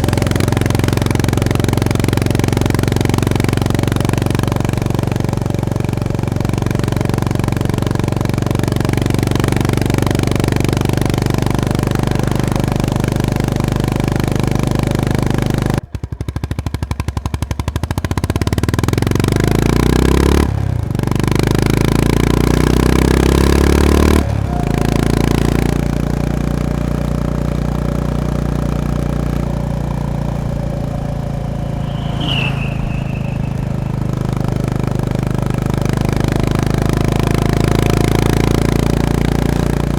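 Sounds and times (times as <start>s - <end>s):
single-cylinder motorcycle engine: 0.0s - 31.9s, 34.8s - 39.9s
high falling chirp: 30.7s - 34.8s.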